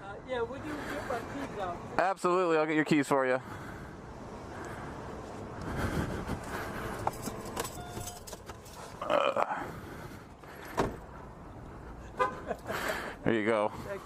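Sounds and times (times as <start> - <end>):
low outdoor rumble: 3.3 - 14.0
car keys jangling: 7.0 - 9.0.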